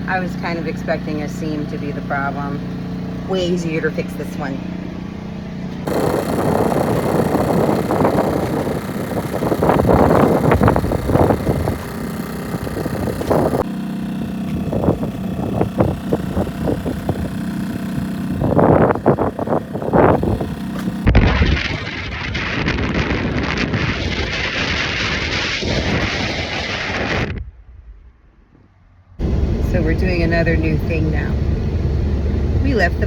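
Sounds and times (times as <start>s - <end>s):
wind buffeting microphone: 5.8s - 13.7s, 14.5s - 28.1s.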